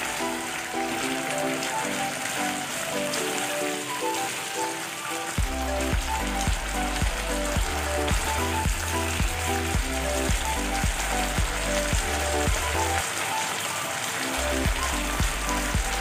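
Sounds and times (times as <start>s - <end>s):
music with bass and beat: 5.4s - 13.0s, 14.4s - 16.0s.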